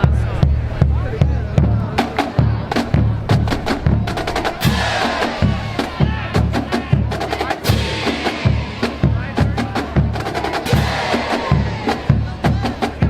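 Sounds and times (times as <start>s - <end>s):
bass drum hits: 0.0s - 10.1s.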